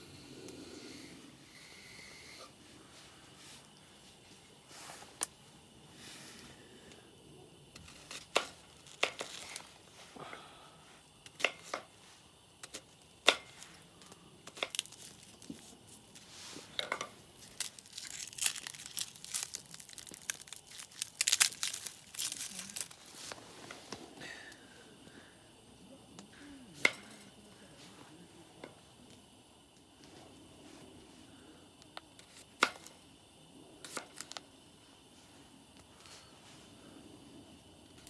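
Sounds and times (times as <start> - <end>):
crinkling and rustling: 7.8 - 9.8, 14.5 - 24.1.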